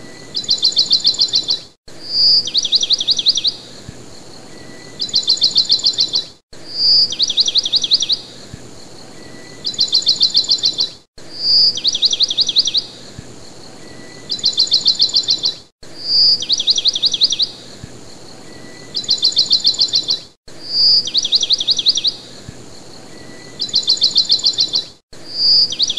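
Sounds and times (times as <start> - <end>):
songbird whistles and trill: 0.0 - 25.9.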